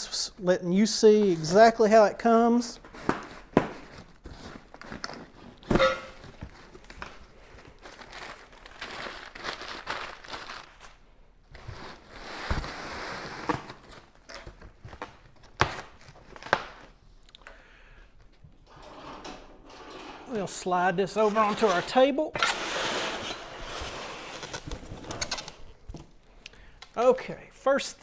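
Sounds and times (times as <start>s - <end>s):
cardboard rustling and tearing: 2.8s - 17.0s.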